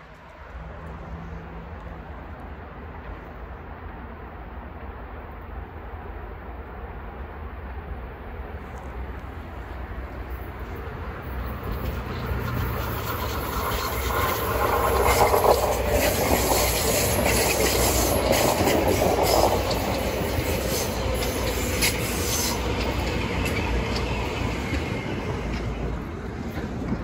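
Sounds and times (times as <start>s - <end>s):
commuter train passing: 0.0s - 27.0s
wheels clicking over rail joints: 10.1s - 27.0s
wheel squeal: 11.6s - 25.3s.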